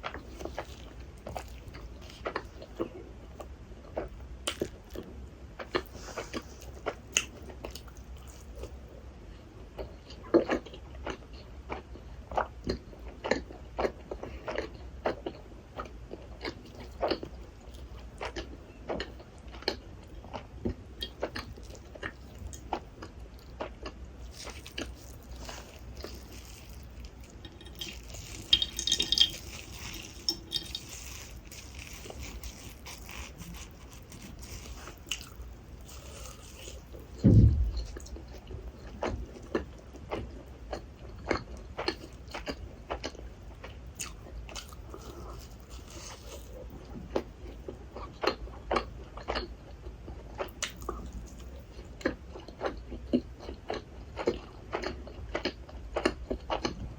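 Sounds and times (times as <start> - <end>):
wet chewing and smacking: 0.0 - 8.9, 9.7 - 56.9.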